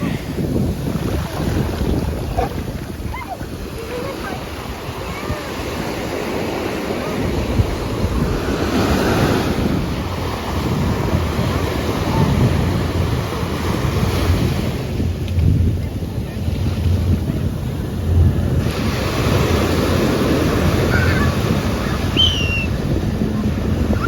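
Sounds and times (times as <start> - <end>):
ocean surf washing: 0.0 - 24.0
wind buffeting microphone: 0.0 - 24.0.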